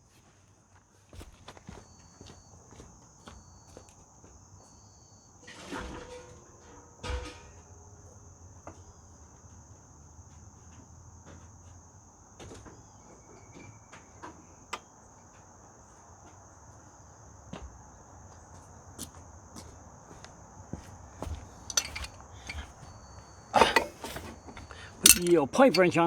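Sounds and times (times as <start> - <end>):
metallic clanks of hand tools: 21.7 - 22.6, 23.6 - 24.3, 25.0 - 26.0.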